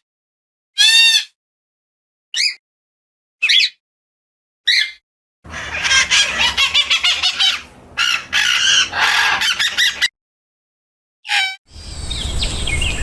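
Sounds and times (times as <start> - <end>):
birds calling: 4.7 - 10.1, 11.7 - 13.0.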